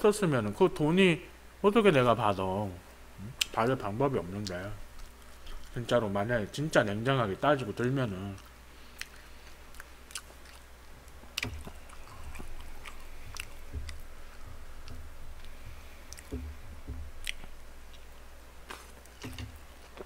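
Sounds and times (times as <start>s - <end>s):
chewing and biting: 4.4s - 5.8s, 8.3s - 16.6s, 17.2s - 20.0s.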